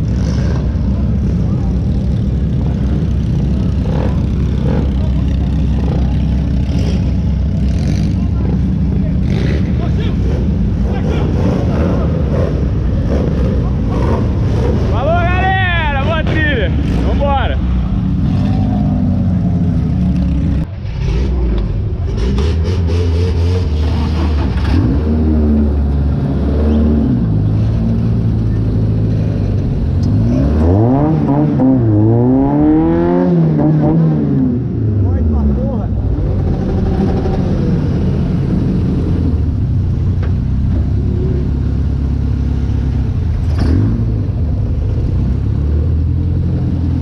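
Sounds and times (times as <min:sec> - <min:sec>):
off-road buggy engine rumbling: 0:00.0 - 0:47.0
faint voices: 0:00.7 - 0:20.8.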